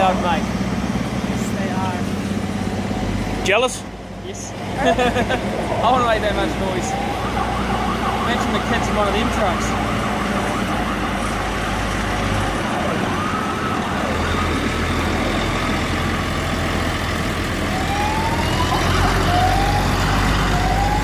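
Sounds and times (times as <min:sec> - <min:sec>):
heavy truck engines rumbling: 0:00.0 - 0:21.0
sirens sounding in rising sweeps: 0:05.6 - 0:21.0.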